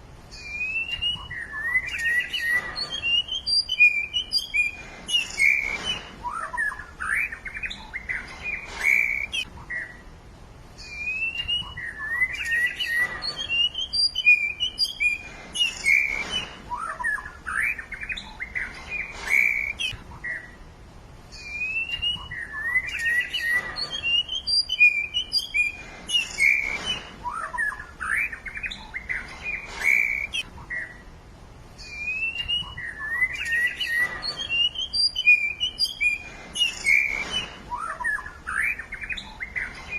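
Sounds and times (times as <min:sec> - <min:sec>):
birds chirping and singing: 0:00.1 - 0:39.9.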